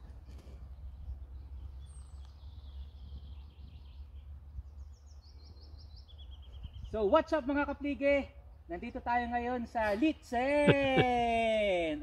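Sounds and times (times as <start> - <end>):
wind rumble on microphone: 0.0 - 7.0
small songbird singing: 0.6 - 9.4.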